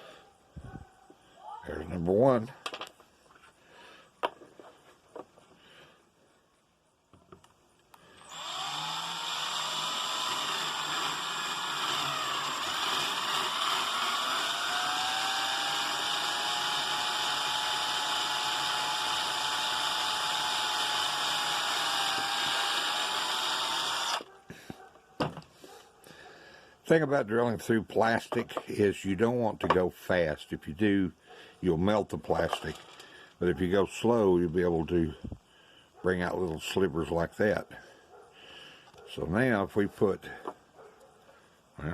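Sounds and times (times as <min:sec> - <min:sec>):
electric drill whining: 0:08.0 - 0:24.3.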